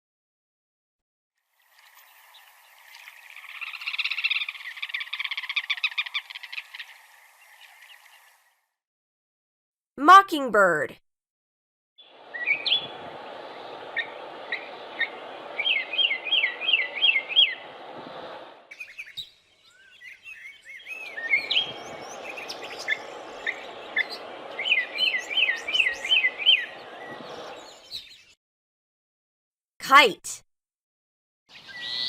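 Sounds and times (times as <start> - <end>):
mockingbird singing: 14.0 - 17.6, 18.7 - 28.3.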